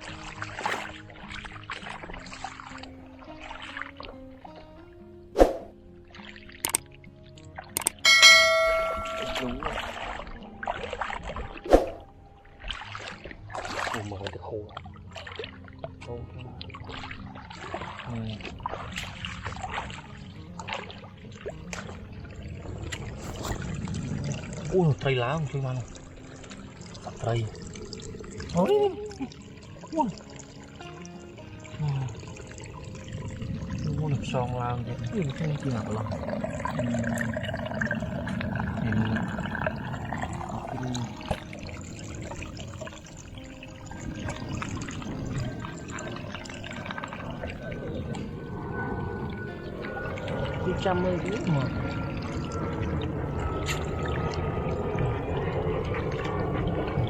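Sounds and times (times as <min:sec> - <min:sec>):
water sloshing and splashing: 0:00.0 - 0:57.0
sharp clicks: 0:06.6 - 0:06.8, 0:07.8 - 0:08.0
low voice: 0:31.8 - 0:32.2, 0:40.6 - 0:41.3.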